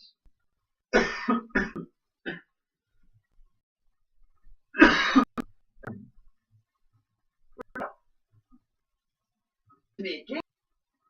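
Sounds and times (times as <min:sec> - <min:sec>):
man coughing: 0:01.0 - 0:02.5, 0:04.8 - 0:05.4.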